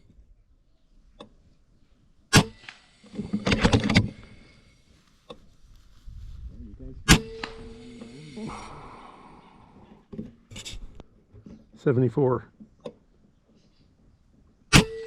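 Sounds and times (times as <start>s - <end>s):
air rifle firing: 7.1s - 7.7s
burst of rough noise: 7.6s - 10.1s.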